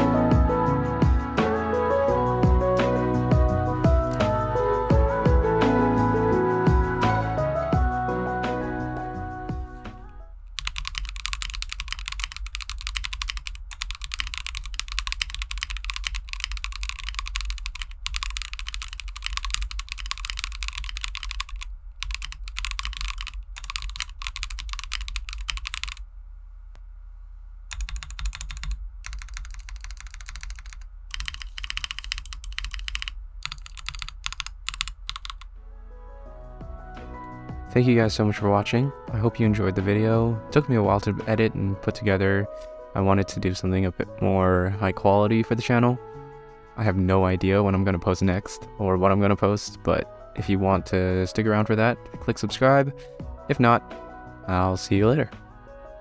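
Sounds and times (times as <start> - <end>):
mechanical keyboard typing: 10.6 - 26.0, 27.7 - 35.5.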